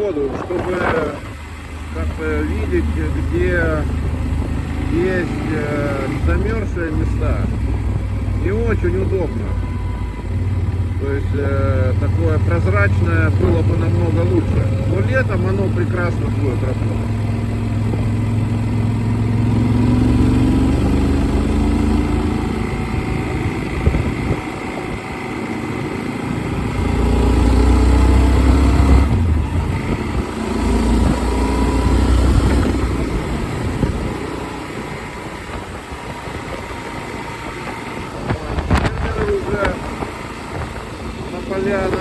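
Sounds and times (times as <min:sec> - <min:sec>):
wind rumble on microphone: 0:00.0 - 0:01.5, 0:19.6 - 0:25.2, 0:28.2 - 0:42.0
motorcycle engine revving: 0:00.0 - 0:42.0.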